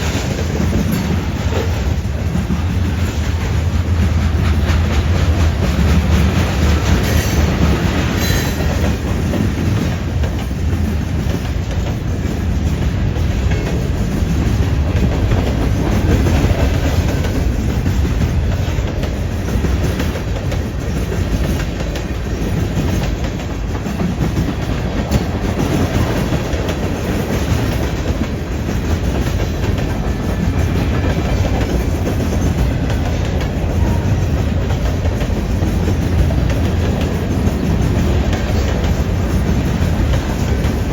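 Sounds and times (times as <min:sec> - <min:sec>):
freight train rumbling past: 0:00.0 - 0:40.9
wheels clicking over rail joints: 0:00.0 - 0:40.9.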